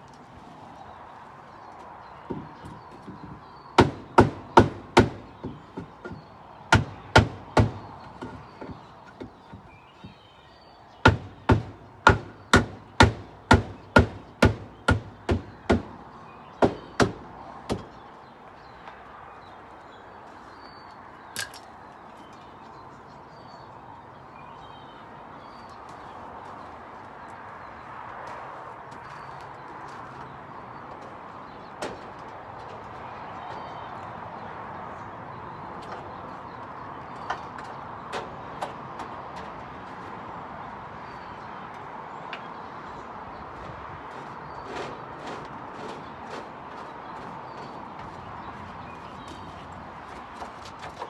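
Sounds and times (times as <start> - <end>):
hammer blows on wood: 3.8 - 8.8, 11.1 - 16.0.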